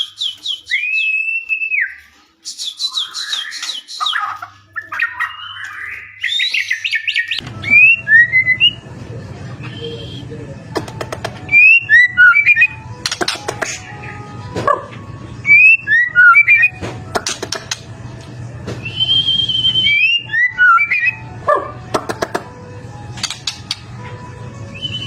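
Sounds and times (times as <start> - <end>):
songbird whistling and clicking: 0.0 - 8.0, 9.6 - 13.9, 23.2 - 23.9.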